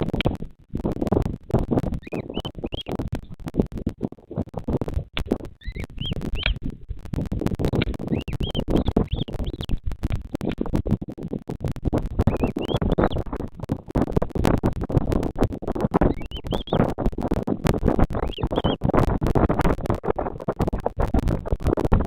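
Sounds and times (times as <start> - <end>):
crackling and rustling on microphone: 0.0 - 22.0
high bird chirps: 2.0 - 3.0, 5.6 - 6.6, 8.1 - 9.7, 12.3 - 13.2, 16.1 - 16.8, 18.2 - 18.8.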